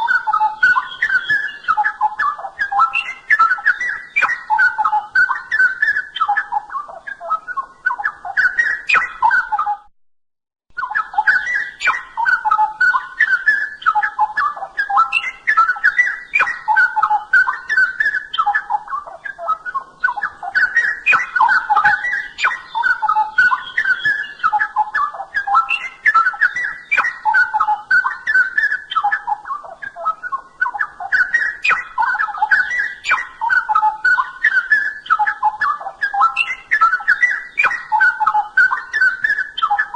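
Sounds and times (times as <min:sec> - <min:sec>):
bird singing warbled phrases: 0:00.0 - 0:09.9, 0:10.7 - 0:39.9.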